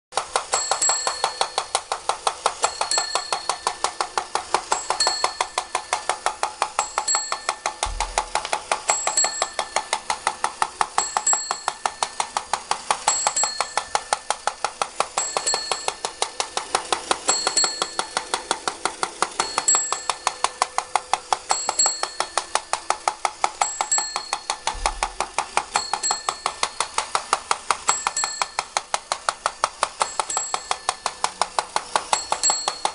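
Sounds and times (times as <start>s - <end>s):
toy bell dinging: 0.2s - 32.9s
toy mechanism clicking: 0.2s - 32.9s.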